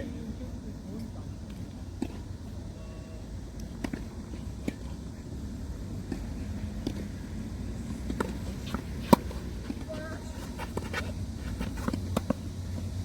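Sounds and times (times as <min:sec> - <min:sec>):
tennis ball impacts: 0:01.4 - 0:02.5, 0:03.6 - 0:05.0, 0:06.0 - 0:13.0.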